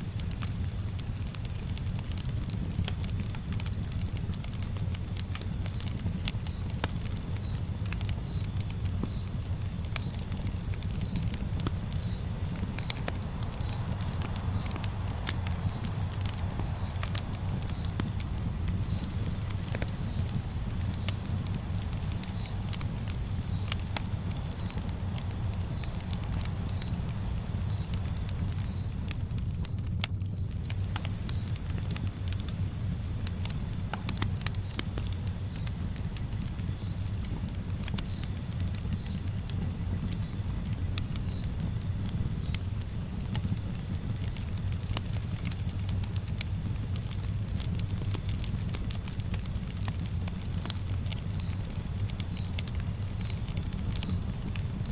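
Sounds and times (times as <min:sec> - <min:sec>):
campfire crackling: 0:00.0 - 0:54.9
low rumble of flame: 0:00.0 - 0:54.9.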